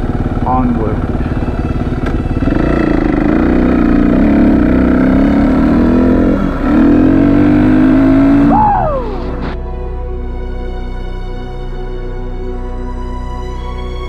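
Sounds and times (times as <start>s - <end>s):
motorcycle engine running hard: 0.0s - 9.4s.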